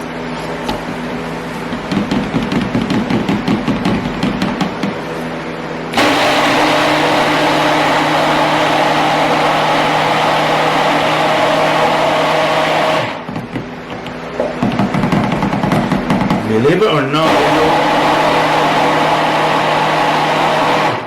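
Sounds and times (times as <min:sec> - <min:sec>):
stick blender motor running: 0:05.9 - 0:13.3, 0:17.2 - 0:21.0.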